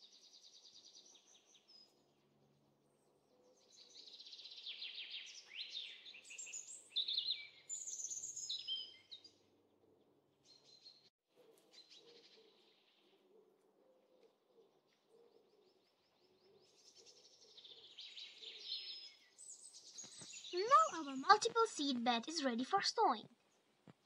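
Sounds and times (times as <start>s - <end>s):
songbird singing trills: 3.4s - 9.4s, 15.1s - 22.6s.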